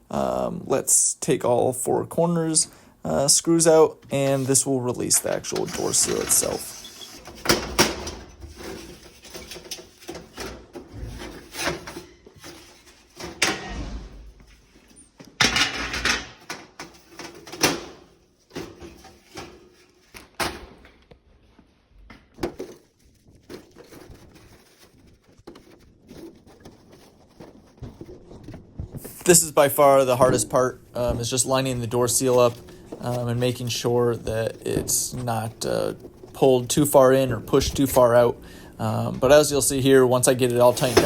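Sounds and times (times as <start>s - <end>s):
short scrapes: 10.9s - 15.2s.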